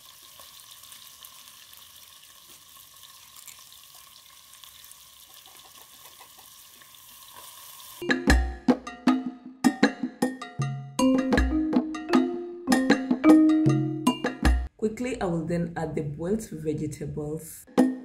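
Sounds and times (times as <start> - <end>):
onions sizzling in oil: 0.0 - 8.0
pitched percussion music: 8.0 - 14.7.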